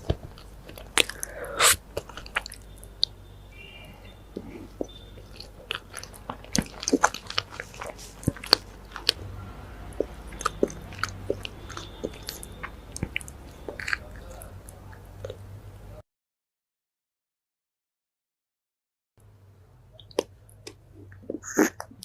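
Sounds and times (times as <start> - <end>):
eating cupcake crunching: 0.0 - 3.2, 4.4 - 15.4, 20.0 - 22.0.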